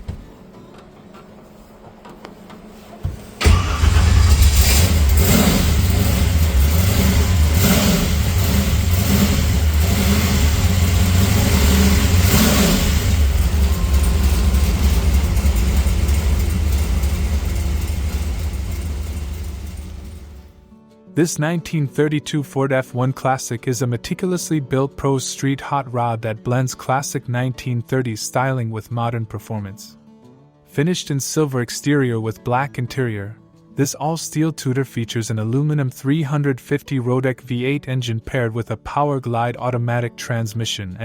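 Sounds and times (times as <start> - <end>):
car engine starting and idling: 3.3 - 20.6
engine throttle blips: 3.4 - 20.6.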